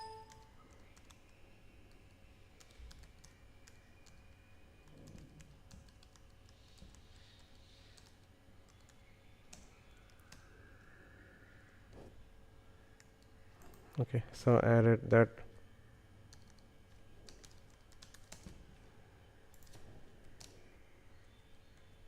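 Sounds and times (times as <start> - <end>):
brief tone: 0.0 - 0.9
computer keyboard typing: 0.0 - 10.4, 16.3 - 18.6, 19.5 - 20.6.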